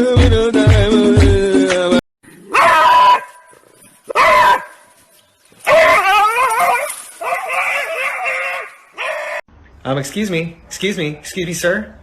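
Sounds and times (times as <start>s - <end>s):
background music: 0.0s - 2.0s.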